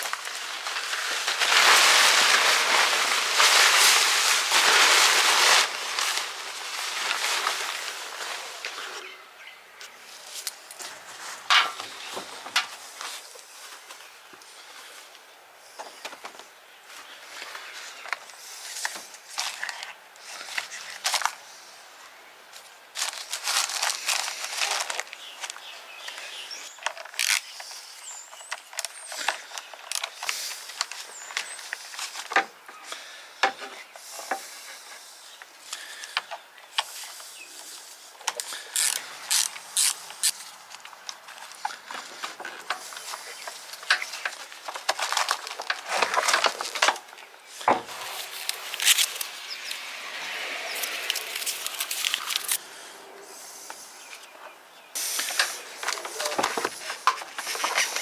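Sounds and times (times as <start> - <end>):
rustling hiss: 0.0 - 9.1, 17.0 - 58.0.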